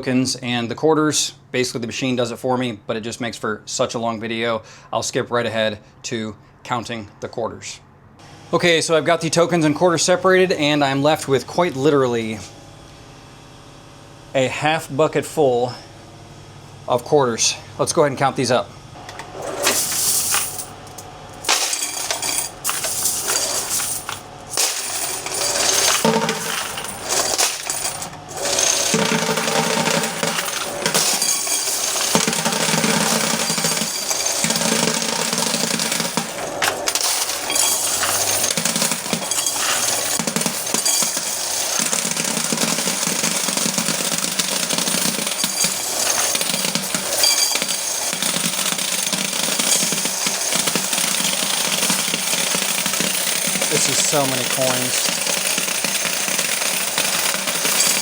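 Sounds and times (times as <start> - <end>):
coin counting machine running: 19.3 - 58.0
coins clattering into machine: 19.4 - 58.0.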